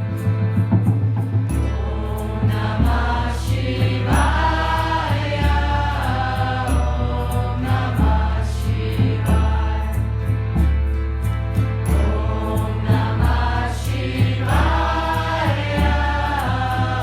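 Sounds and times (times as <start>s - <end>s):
music with low bass notes: 0.0s - 17.0s
group chanting mantra: 1.8s - 10.1s, 12.0s - 17.0s.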